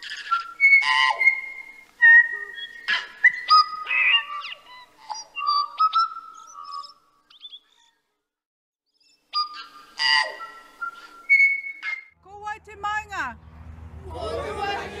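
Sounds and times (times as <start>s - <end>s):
harsh bird squawk: 0.0s - 7.8s, 9.3s - 12.1s
songbird singing: 0.0s - 8.0s.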